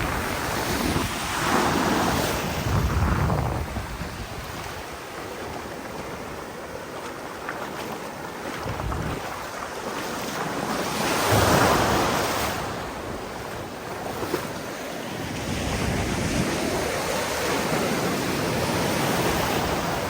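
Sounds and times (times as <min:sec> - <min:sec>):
wind buffeting microphone: 0:00.0 - 0:06.5, 0:08.5 - 0:09.6, 0:15.2 - 0:20.0
waves washing in: 0:00.0 - 0:20.0.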